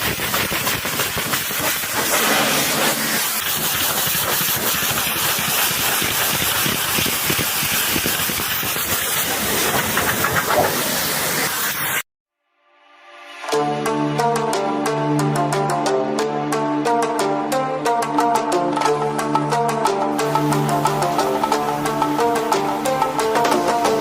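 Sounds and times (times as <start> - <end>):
pressure washer spraying: 0.0 - 12.0, 20.2 - 24.0.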